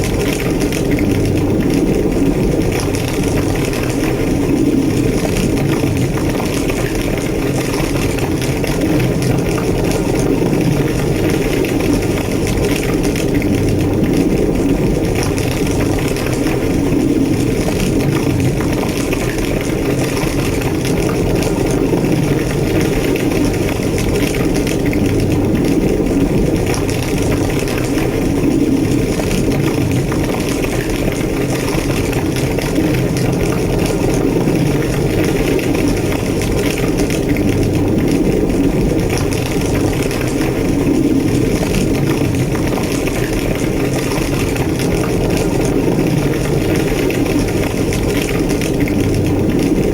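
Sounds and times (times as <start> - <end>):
faint fire crackles: 0.0 - 49.9
large fire roaring: 0.0 - 49.9.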